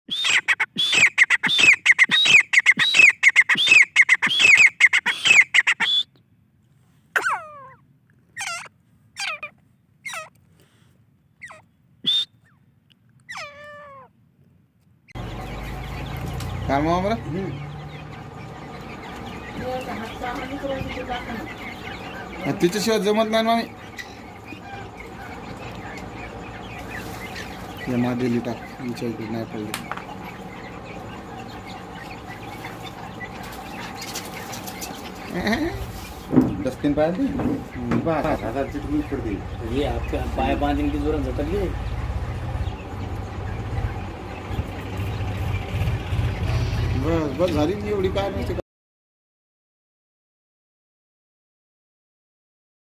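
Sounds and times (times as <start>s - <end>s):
bird calling high falling calls: 0.1s - 6.3s, 7.1s - 14.1s, 15.1s - 48.6s
faint chirps: 15.1s - 48.6s
steady background hum: 15.1s - 48.6s
bird wings flapping: 33.2s - 36.4s.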